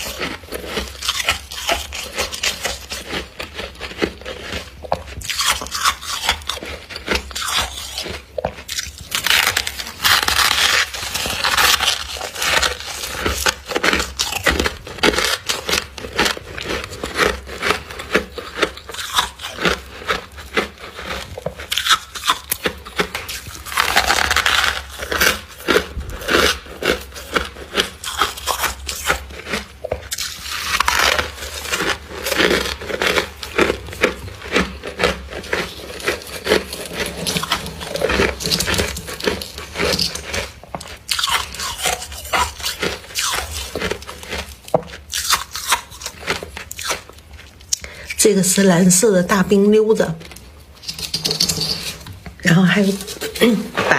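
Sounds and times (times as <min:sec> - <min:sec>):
crunching ice in the mouth: 0:00.0 - 0:53.9.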